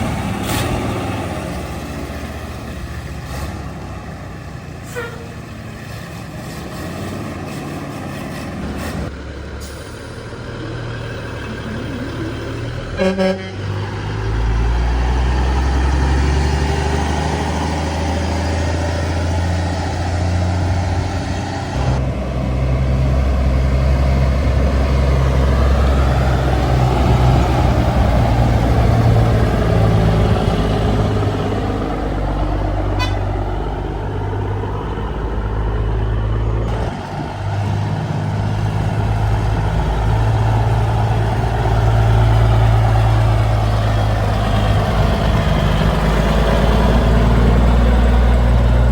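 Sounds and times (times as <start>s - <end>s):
truck engines driving by: 0.0s - 48.9s.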